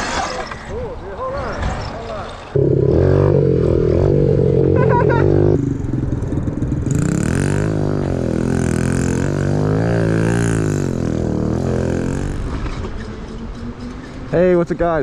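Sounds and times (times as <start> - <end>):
small motorcycle engine revving: 2.6 - 13.5.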